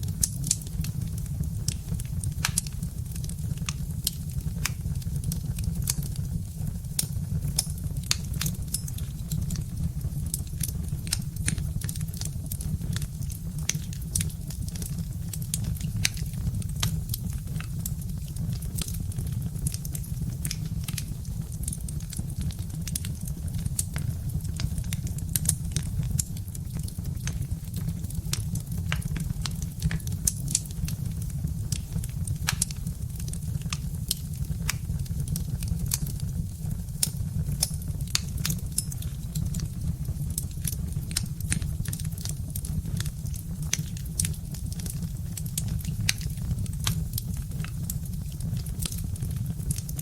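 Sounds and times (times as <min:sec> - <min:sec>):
log fire crackling and popping: 0:00.0 - 0:50.0.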